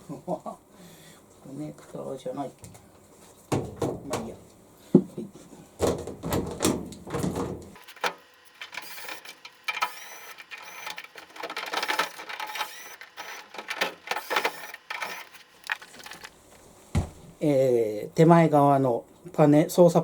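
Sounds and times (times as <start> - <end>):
plastic parts clicking and rattling: 5.8 - 16.3.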